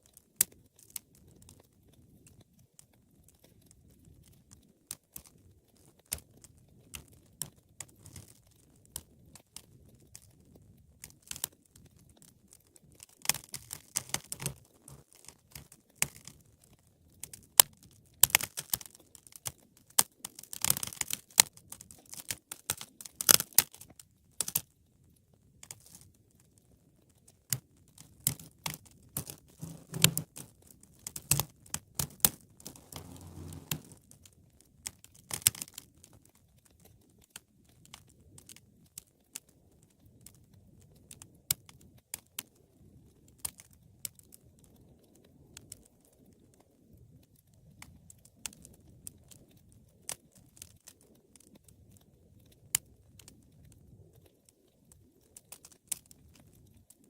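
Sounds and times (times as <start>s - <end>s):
wood fire crackling: 29.6s - 30.3s, 32.6s - 34.0s.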